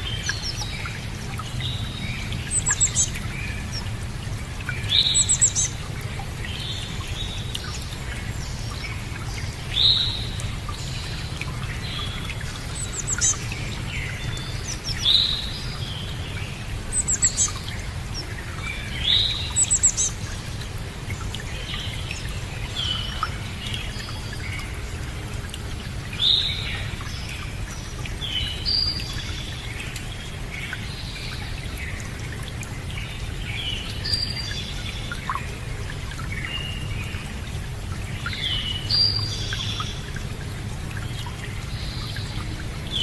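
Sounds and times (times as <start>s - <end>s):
birds chirping and trilling: 0.0s - 3.9s, 4.6s - 5.8s, 6.4s - 20.4s
running water: 0.0s - 43.0s.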